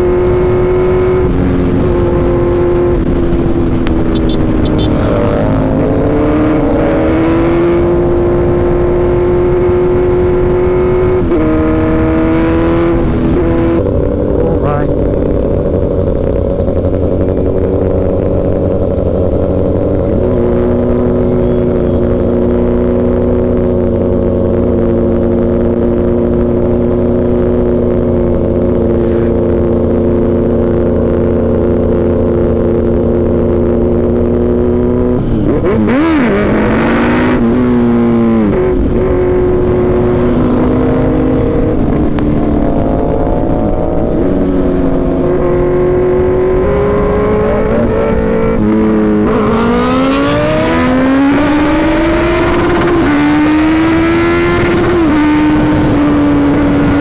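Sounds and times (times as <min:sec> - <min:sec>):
motorcycle engine running: 0:00.0 - 0:57.0
loud rush of noise: 0:28.2 - 0:31.0, 0:35.2 - 0:57.0.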